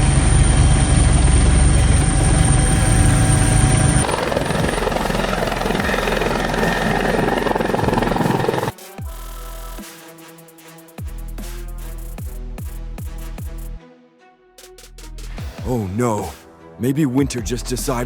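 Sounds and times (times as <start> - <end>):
helicopter rotor and engine: 0.0 - 8.8
electronic music: 1.7 - 13.8.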